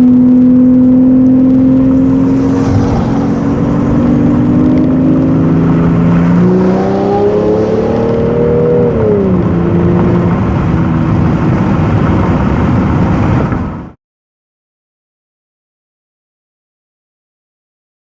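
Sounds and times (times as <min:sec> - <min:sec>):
car engine running loud: 0:00.0 - 0:14.0.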